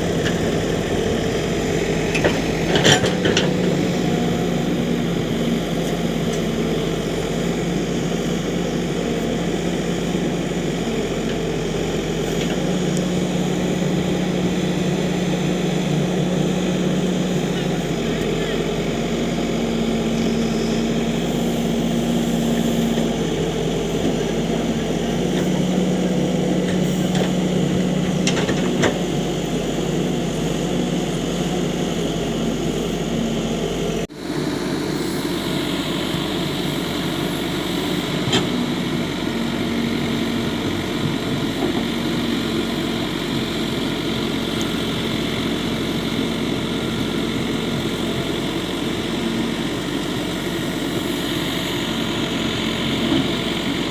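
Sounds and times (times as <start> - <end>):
heavy diesel engine running: 0.0 - 53.9.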